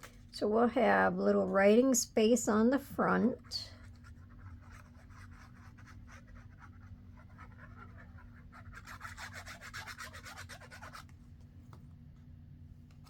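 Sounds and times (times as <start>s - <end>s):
rubbing on paper: 3.4s - 11.1s.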